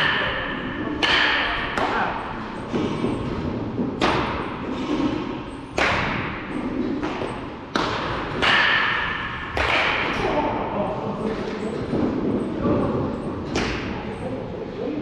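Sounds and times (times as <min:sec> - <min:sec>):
baseball striking bat or glove: 0:00.0 - 0:05.1, 0:05.7 - 0:10.4.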